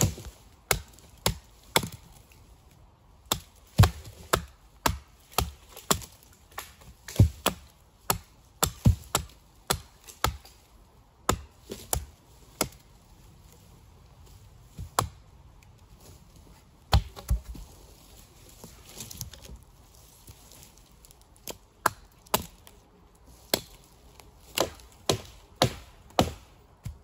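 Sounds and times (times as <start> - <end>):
axe chopping wood: 0.0 - 2.2, 3.2 - 10.6, 11.2 - 12.8, 14.7 - 15.2, 16.8 - 17.6, 21.4 - 22.7, 23.4 - 23.8, 24.4 - 27.0.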